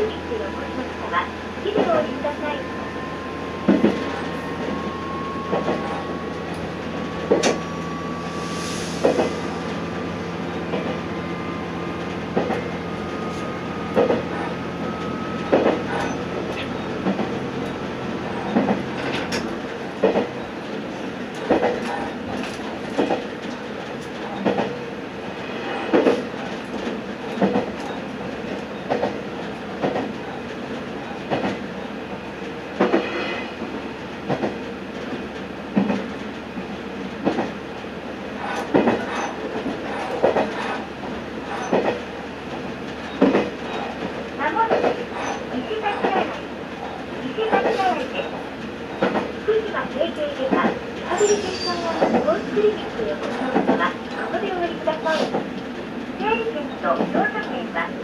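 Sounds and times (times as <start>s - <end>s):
train wheels clacking over rail joints: 13.9s - 24.8s, 25.9s - 30.5s, 38.4s - 57.5s.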